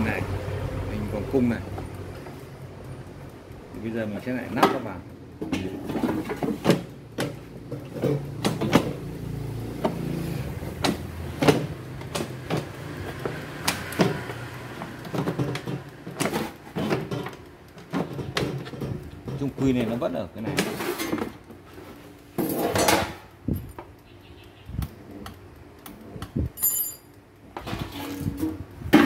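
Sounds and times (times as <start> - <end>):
plastic parts clicking and knocking: 10.7 - 21.6.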